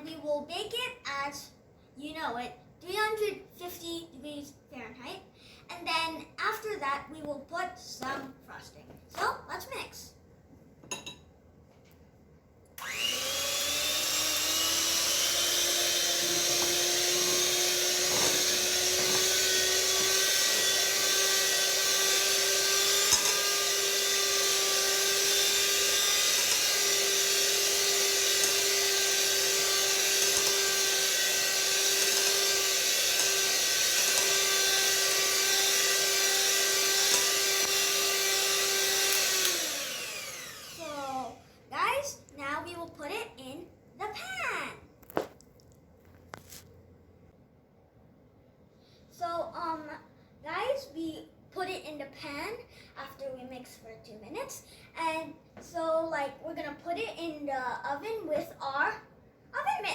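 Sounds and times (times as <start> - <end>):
electric mixer motor whine: 12.8 - 41.4.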